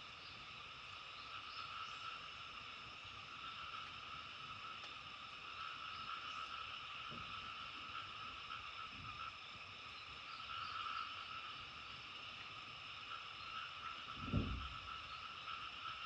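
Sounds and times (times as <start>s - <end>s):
frogs calling: 0.0s - 16.0s
dull low thump: 14.2s - 14.9s.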